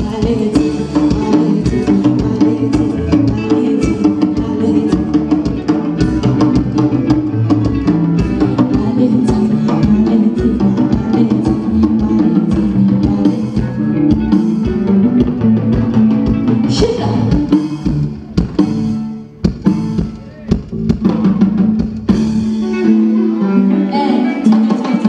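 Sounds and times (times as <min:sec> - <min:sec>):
band playing: 0:00.0 - 0:25.0
drum hits: 0:12.1 - 0:22.6.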